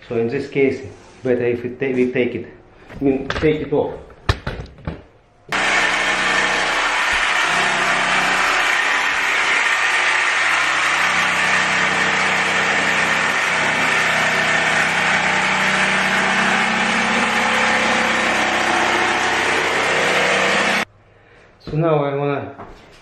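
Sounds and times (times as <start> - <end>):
electric power saw cutting: 5.5 - 20.9.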